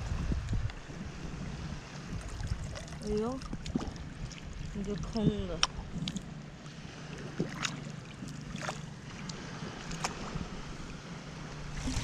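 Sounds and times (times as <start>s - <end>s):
wind on microphone: 0.0s - 6.4s, 8.5s - 12.0s
sea surf: 4.0s - 12.0s.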